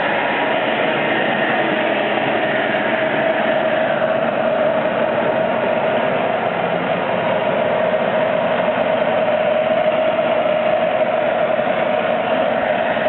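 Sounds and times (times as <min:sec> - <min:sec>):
lathe running: 0:00.0 - 0:13.0.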